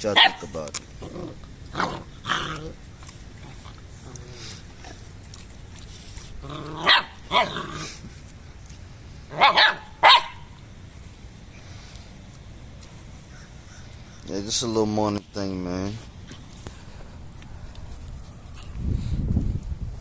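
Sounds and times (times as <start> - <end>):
dogs barking: 0.0 - 0.5, 6.7 - 7.7, 9.3 - 10.6.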